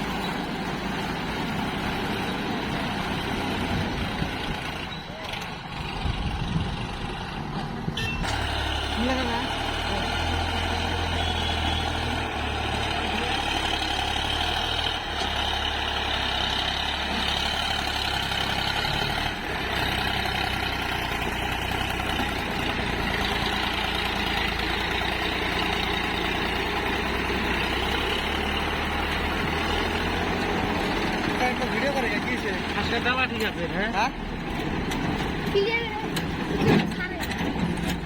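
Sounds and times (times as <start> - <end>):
heavy diesel engine running: 0.0 - 38.0.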